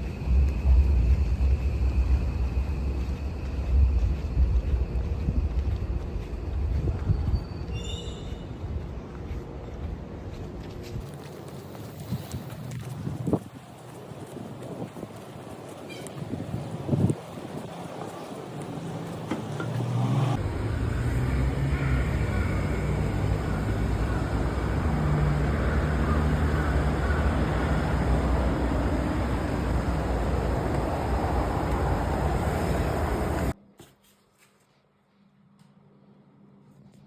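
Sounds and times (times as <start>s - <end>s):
road vehicle rumbling: 0.0s - 33.6s.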